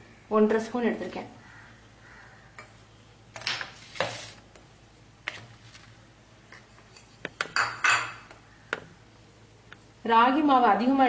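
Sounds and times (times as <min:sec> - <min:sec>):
bowls and spoons clinking: 0:06.9 - 0:08.3.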